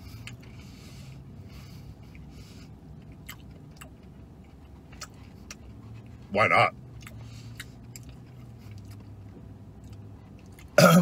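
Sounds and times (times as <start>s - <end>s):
low car cabin hum: 0.0s - 11.0s
quiet chewing: 3.0s - 6.3s, 6.9s - 10.8s.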